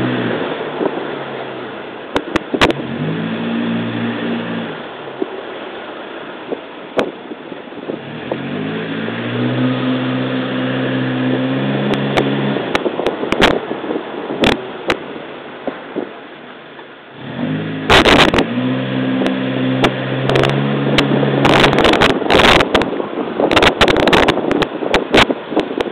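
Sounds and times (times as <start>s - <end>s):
car engine pulling away: 0.0s - 1.8s, 2.6s - 5.0s, 7.9s - 13.0s, 17.2s - 22.7s
road and wind noise: 0.0s - 25.9s.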